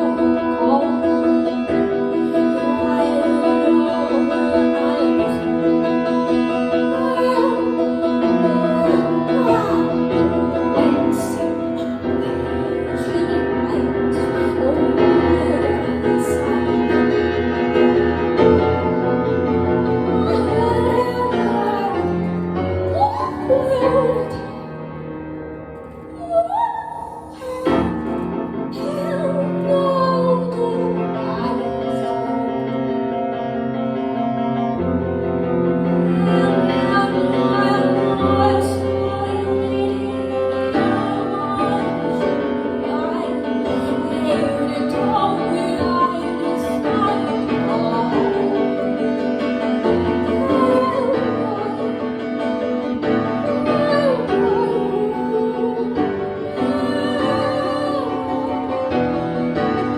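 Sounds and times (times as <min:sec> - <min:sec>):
slow piano melody: 0:00.0 - 0:59.9.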